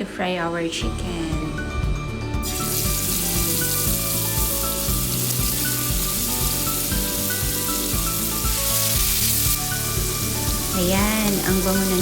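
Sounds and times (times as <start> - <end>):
background music: 0.0 - 12.0
chicken sizzling in hot oil: 2.4 - 12.0.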